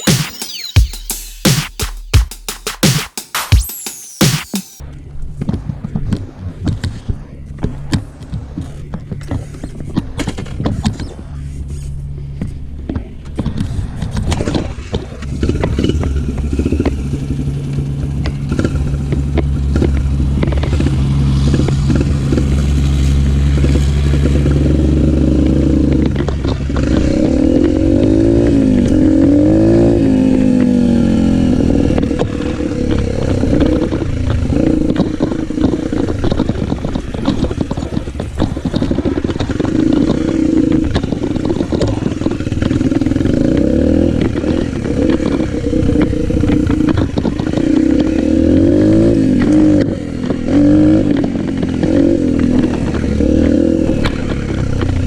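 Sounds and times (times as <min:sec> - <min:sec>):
engine clatter: 0:12.4 - 0:55.0
motocross bike engine revving: 0:13.6 - 0:55.0.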